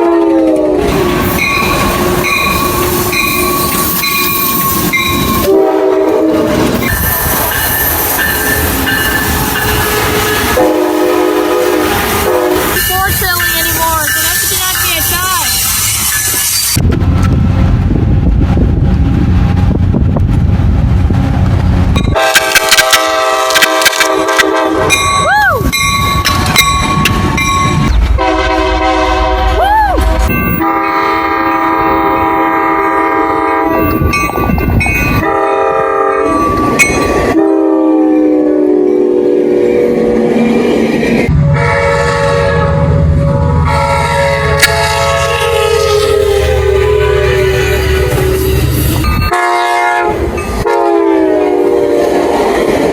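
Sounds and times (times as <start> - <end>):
locomotive air horn: 0.0 - 13.2, 22.2 - 25.3, 28.1 - 34.1, 35.2 - 36.6, 37.2 - 40.6, 41.3 - 52.8
train low rumble: 0.0 - 52.9.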